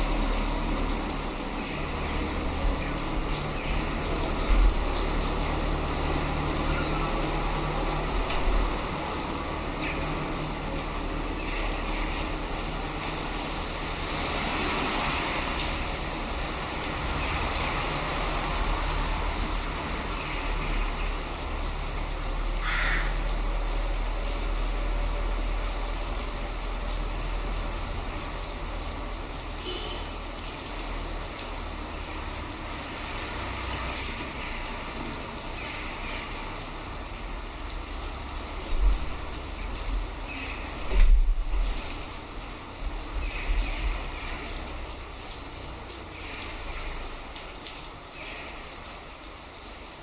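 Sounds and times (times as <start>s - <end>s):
rain: 0.0s - 50.0s
crow cawing: 22.6s - 23.3s.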